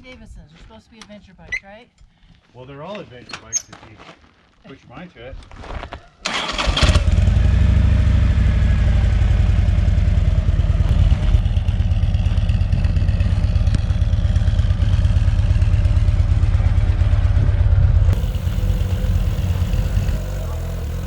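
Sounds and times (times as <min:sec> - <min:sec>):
motorcycle engine running: 0:07.0 - 0:21.0.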